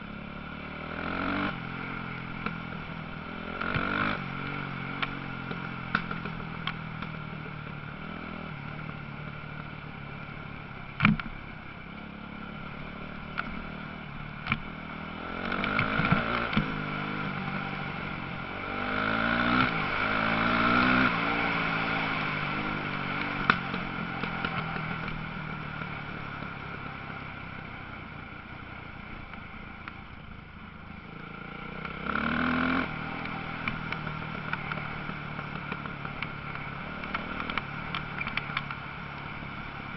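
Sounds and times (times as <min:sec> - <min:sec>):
motocross bike engines revving: 0:00.7 - 0:06.2, 0:15.2 - 0:25.3, 0:31.2 - 0:38.5.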